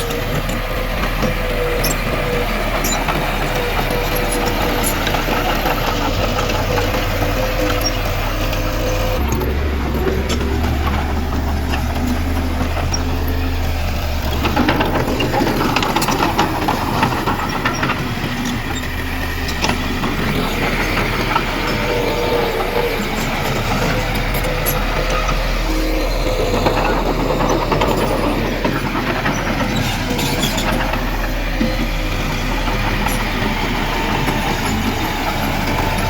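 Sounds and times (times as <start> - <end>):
clanking and rattling: 0.0 - 36.0
heavy machinery diesel engine: 0.0 - 36.0.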